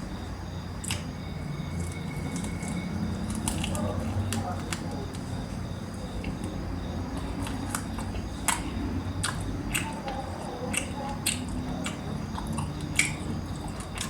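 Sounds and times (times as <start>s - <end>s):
chewing and mouth smacking: 0.8s - 1.1s, 1.7s - 5.3s, 5.9s - 14.0s.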